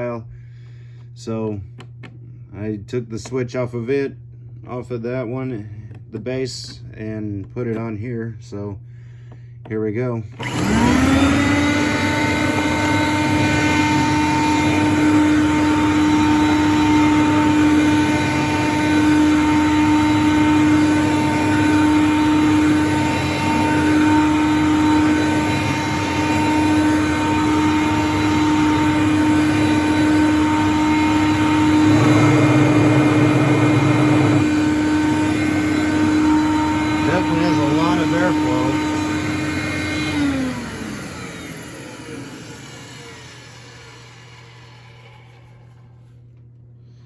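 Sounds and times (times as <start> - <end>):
vacuum cleaner motor whining: 9.6 - 47.0.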